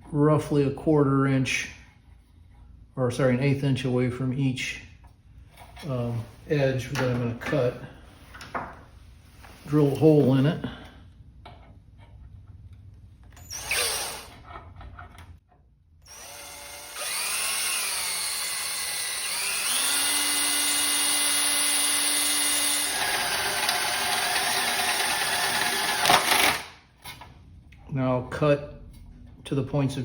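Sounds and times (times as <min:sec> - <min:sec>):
electric drill boring through steel: 0:13.4 - 0:14.4, 0:16.1 - 0:26.7.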